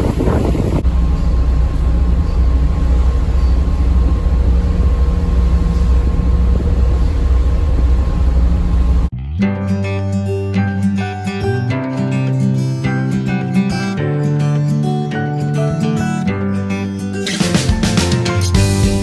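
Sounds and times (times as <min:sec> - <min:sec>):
faint steady hum: 0:00.0 - 0:09.1
ship engine drone: 0:00.0 - 0:09.1
acoustic guitar music: 0:00.8 - 0:19.0.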